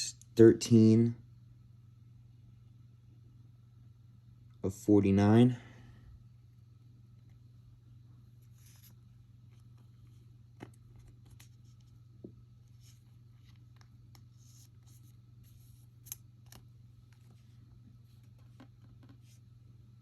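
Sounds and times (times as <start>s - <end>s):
steady low hum: 0.0s - 20.0s
cards swishing against cards: 8.4s - 12.0s.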